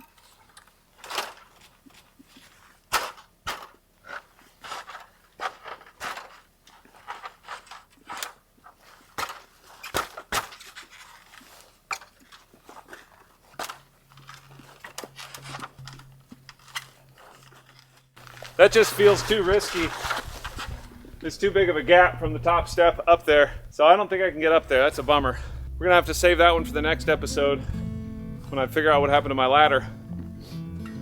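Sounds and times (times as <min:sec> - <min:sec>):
boots crunching in snow: 0:18.2 - 0:23.7.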